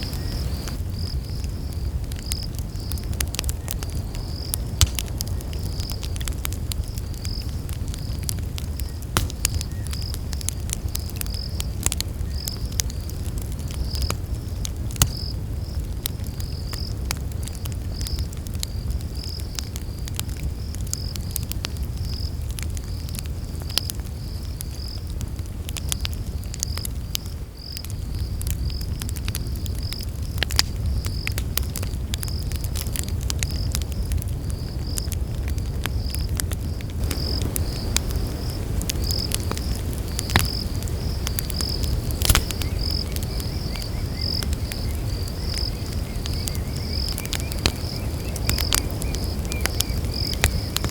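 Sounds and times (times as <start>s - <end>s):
night insects chirping: 0.0s - 15.8s, 35.6s - 50.9s
campfire crackling and popping: 0.0s - 50.9s.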